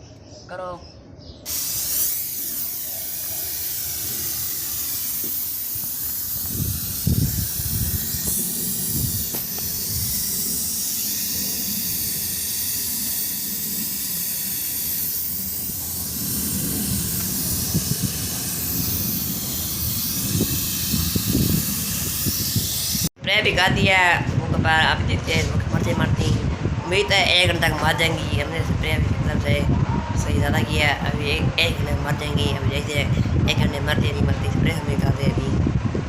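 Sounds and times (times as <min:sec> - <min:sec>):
spray can hissing: 0:01.5 - 0:23.1.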